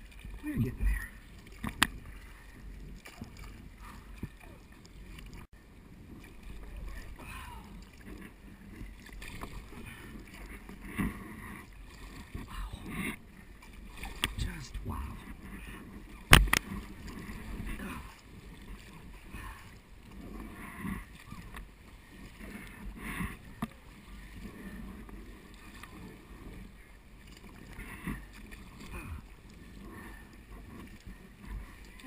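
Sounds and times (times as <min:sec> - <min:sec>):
paddle splashing in water: 0:00.0 - 0:32.0
sharp knock on kayak: 0:16.3 - 0:16.6.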